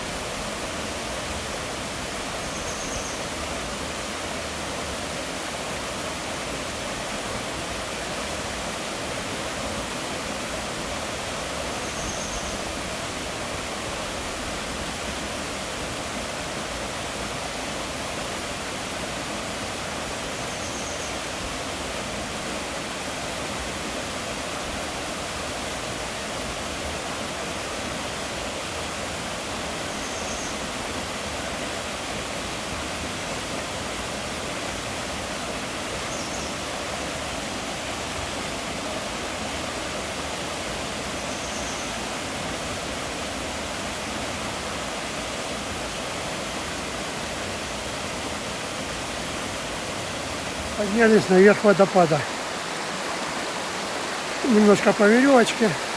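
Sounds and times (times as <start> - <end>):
waterfall rushing: 48.4 - 55.9.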